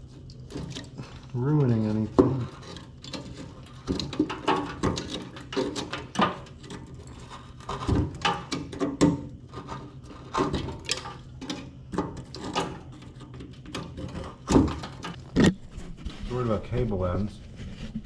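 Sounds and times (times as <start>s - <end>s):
tool scraping hardened mud: 12.1s - 18.0s.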